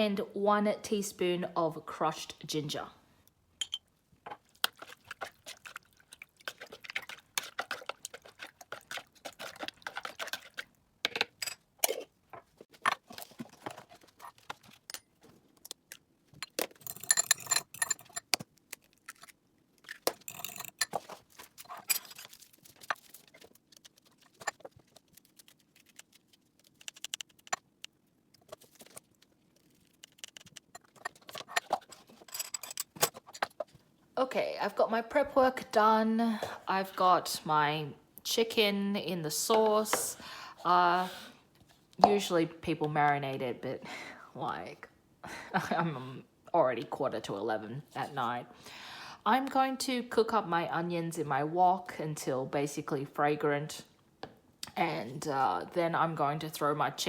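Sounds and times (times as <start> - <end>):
clinks and clatter of utensils: 11.1 - 12.1, 16.4 - 18.4, 20.1 - 22.3, 30.7 - 33.6.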